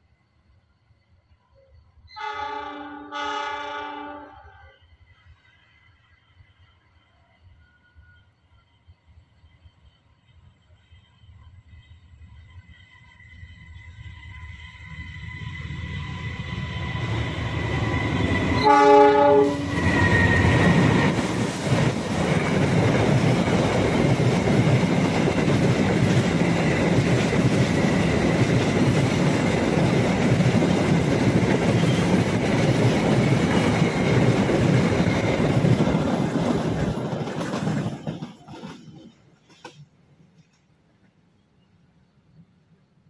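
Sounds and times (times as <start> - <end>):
locomotive horn blast: 2.1 - 4.7, 18.5 - 20.5
train wheels rumbling and clattering: 7.6 - 41.2.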